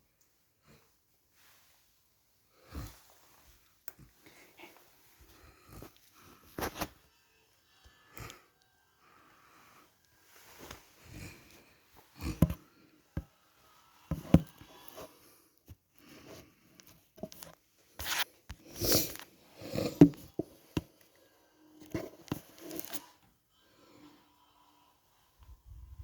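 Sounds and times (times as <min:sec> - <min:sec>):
rustling and handling noises: 0:01.3 - 0:07.0, 0:14.1 - 0:21.1, 0:21.8 - 0:23.2.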